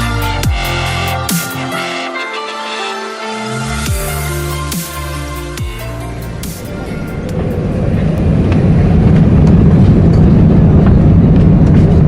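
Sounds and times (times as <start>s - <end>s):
airplane cabin rumble: 3.8s - 12.0s.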